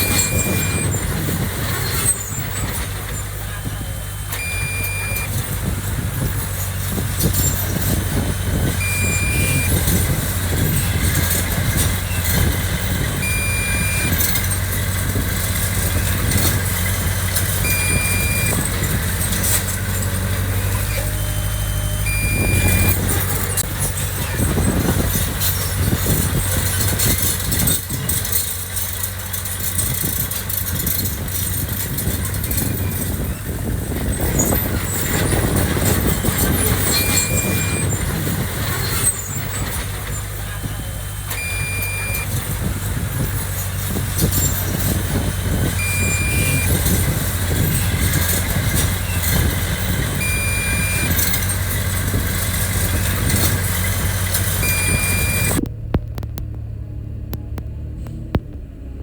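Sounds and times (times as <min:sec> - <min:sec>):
short high beeps: 0:00.0 - 0:01.0, 0:03.8 - 0:05.5, 0:08.8 - 0:10.0, 0:13.2 - 0:14.5, 0:17.6 - 0:18.7, 0:20.8 - 0:23.6, 0:36.8 - 0:38.0, 0:41.3 - 0:42.4, 0:45.8 - 0:46.9, 0:50.2 - 0:51.4, 0:54.6 - 0:55.6
heavy machinery diesel engine: 0:00.0 - 0:59.0.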